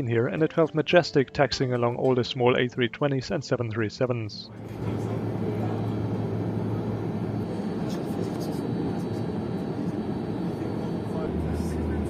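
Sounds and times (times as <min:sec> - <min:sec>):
aircraft engine hum in cabin: 0:04.6 - 0:12.0.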